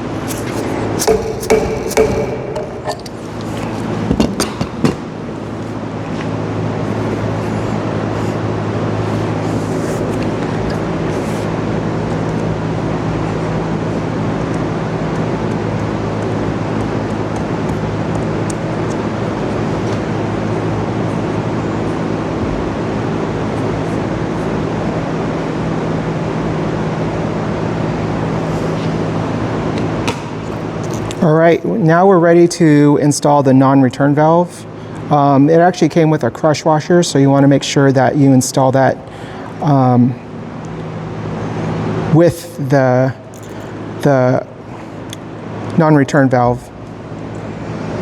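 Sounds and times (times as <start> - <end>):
machine drone: 0.0 - 31.2.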